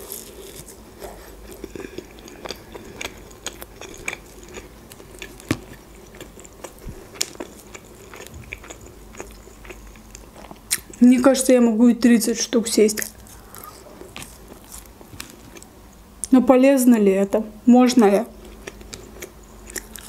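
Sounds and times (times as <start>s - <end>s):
person chewing with mouth clicks: 0.0s - 11.0s, 18.4s - 20.0s.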